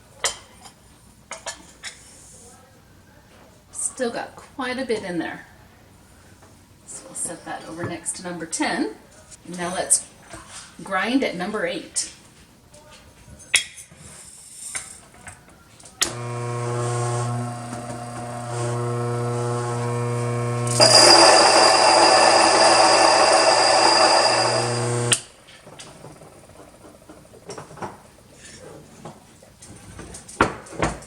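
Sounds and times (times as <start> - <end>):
grain mill motor humming: 16.0 - 25.2
grain being ground: 20.7 - 25.2.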